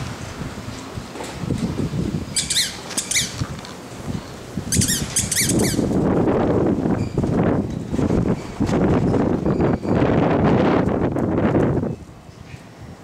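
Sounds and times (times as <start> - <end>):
puppy squeaking cries: 2.4 - 3.4, 4.7 - 5.9.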